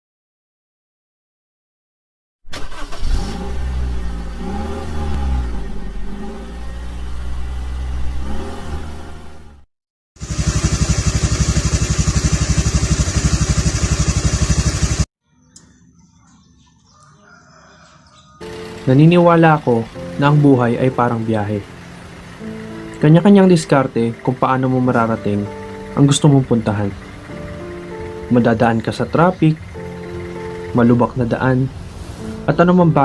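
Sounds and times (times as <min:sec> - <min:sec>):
motorcycle engine revving: 0:02.6 - 0:15.1, 0:18.4 - 0:30.6.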